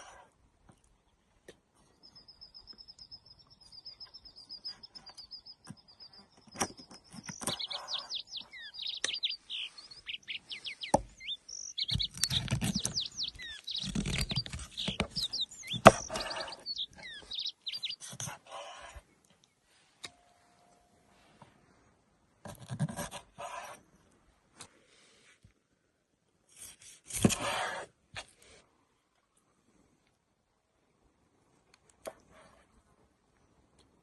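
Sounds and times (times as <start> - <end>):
birds chirping quickly: 1.9 - 19.3
bird high trill: 2.3 - 18.0.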